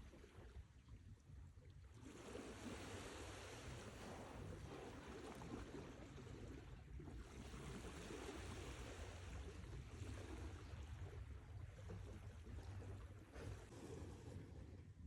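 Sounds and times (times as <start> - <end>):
faint surf wash: 2.0 - 11.0, 13.0 - 14.9.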